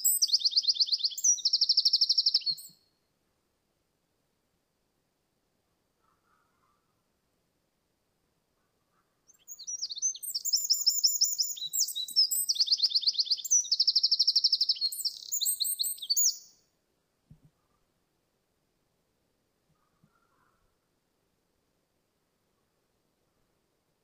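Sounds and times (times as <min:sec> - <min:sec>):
wren singing fast trills: 0:00.0 - 0:02.8, 0:09.3 - 0:16.6.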